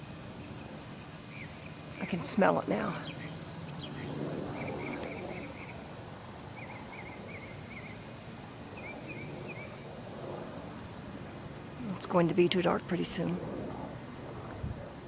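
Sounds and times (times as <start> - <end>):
low steady hum: 0.0 - 15.0
small bird chirping: 1.3 - 2.2, 2.8 - 5.9, 6.5 - 9.8.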